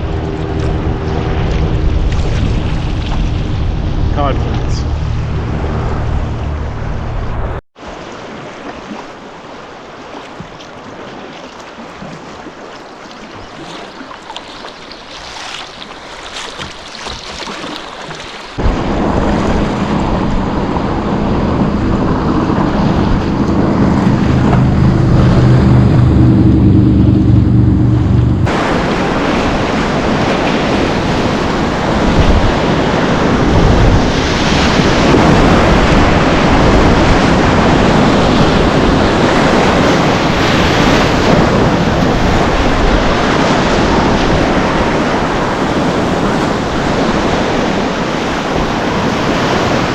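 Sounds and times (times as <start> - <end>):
heavy low rumble: 0.0 - 7.6, 18.6 - 30.2
wind buffeting microphone: 0.0 - 7.6, 18.5 - 49.9
river water rushing: 7.8 - 26.4.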